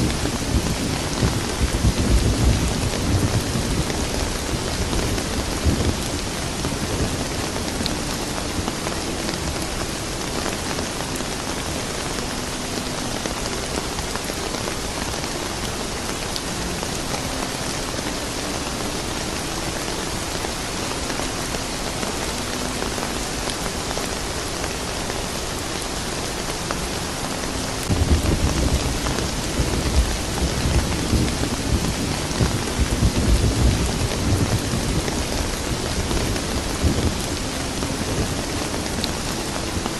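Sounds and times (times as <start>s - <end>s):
thunder rumbling: 0.0s - 11.0s, 27.8s - 39.9s
steady rain falling: 0.0s - 39.9s.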